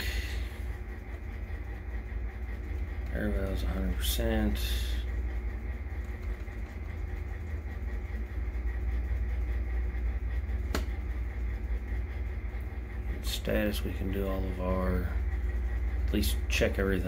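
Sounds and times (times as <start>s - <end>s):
air conditioning hum: 0.0s - 17.0s.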